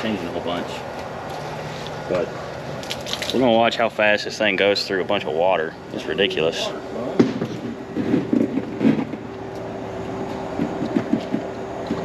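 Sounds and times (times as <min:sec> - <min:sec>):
water pump humming: 0:00.0 - 0:12.0
pump knocks and clatter: 0:07.2 - 0:09.3, 0:10.2 - 0:12.0.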